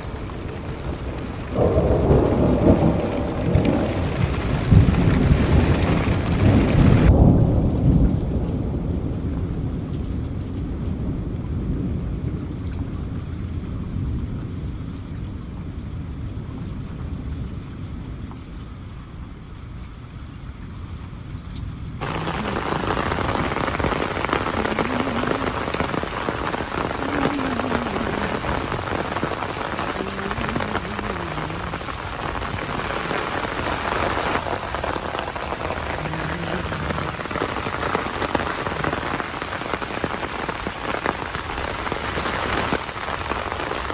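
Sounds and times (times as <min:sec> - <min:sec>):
thunder rumble: 0:00.0 - 0:11.3, 0:22.0 - 0:43.9
rain falling: 0:00.0 - 0:43.9.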